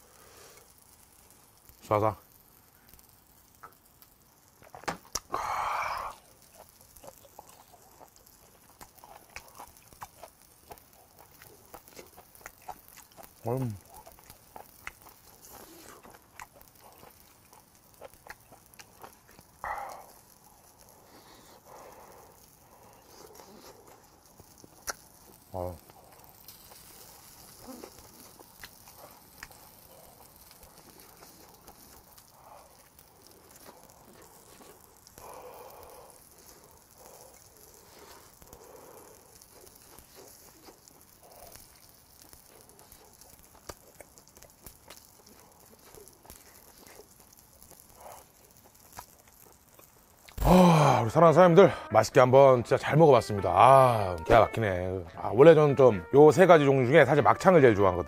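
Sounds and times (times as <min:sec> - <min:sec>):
soft breaths: 0:00.0 - 0:01.6, 0:05.3 - 0:06.4, 0:19.4 - 0:24.8, 0:25.8 - 0:44.2, 0:44.9 - 0:49.0
close chewing and wet mouth sounds: 0:00.4 - 0:50.4.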